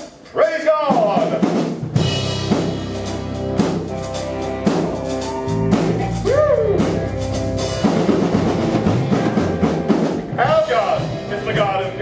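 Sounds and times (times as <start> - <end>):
drum kit beat: 0.0 - 12.0
deep bass line: 2.0 - 12.0
sustained chords: 2.2 - 10.4.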